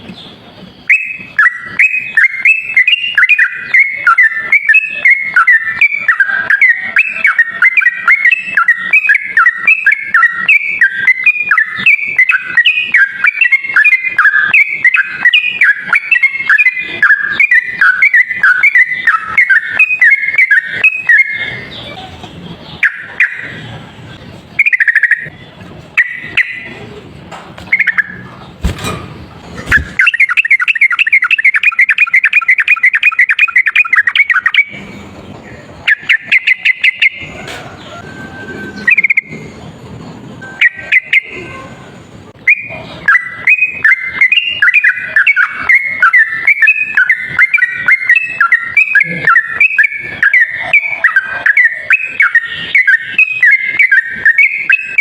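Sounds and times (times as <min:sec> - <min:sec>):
bird chattering song: 0:00.0 - 0:55.0
rough noisy background: 0:00.0 - 0:55.0.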